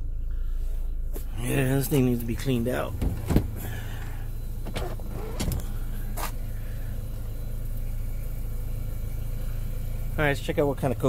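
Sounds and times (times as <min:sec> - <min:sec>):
car engine idling: 0:00.0 - 0:11.0
knocks and rustles in car: 0:01.9 - 0:06.4.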